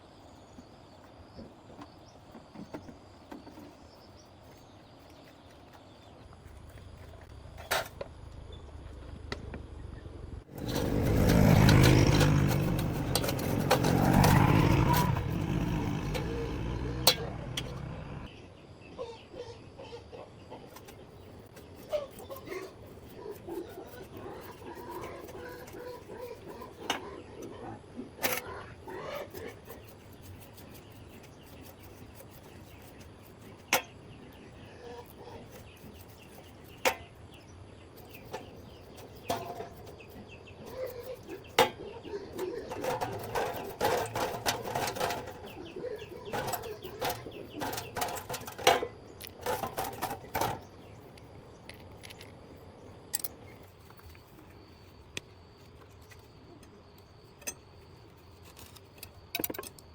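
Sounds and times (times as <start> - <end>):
sharp knocks and clatter: 10.5 - 18.3.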